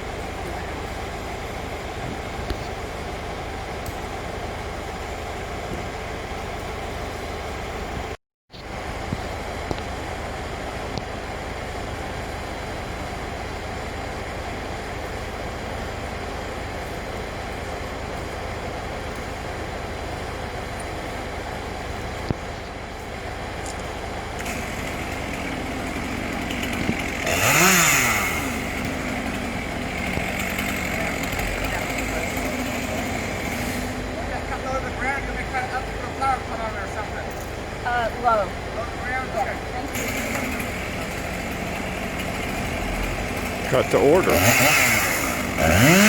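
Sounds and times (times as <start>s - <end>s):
engine running: 0.0s - 46.0s
engine revving: 24.4s - 37.1s, 39.2s - 46.0s.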